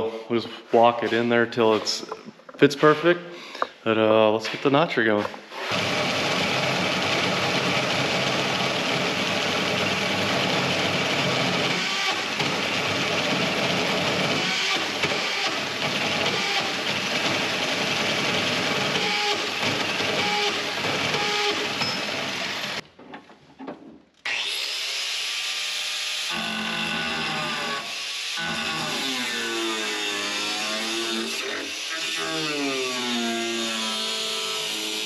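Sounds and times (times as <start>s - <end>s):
hole saw grinding steel tube: 5.5s - 22.8s.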